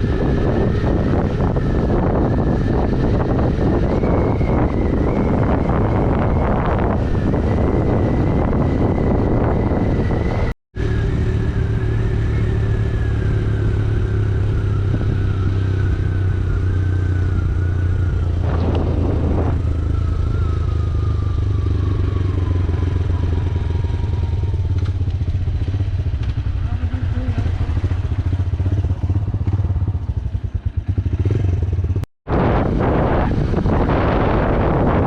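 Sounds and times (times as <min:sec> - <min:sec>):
motorcycle engine running: 0:00.0 - 0:35.0
rush of noise: 0:17.4 - 0:21.1, 0:32.3 - 0:35.0.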